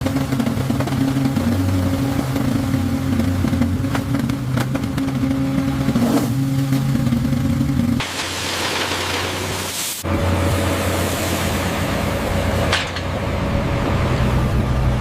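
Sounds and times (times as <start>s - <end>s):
engine humming: 0.0s - 15.0s
rushing hiss: 8.0s - 12.1s.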